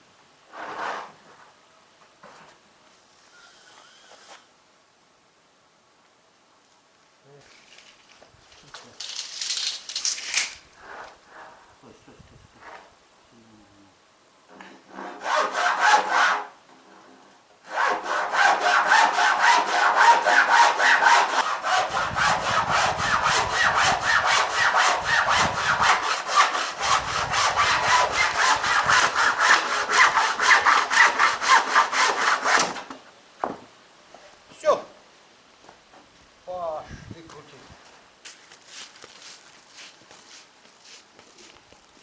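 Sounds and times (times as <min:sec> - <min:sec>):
hand saw cutting wood: 0:14.9 - 0:16.5, 0:17.6 - 0:33.0.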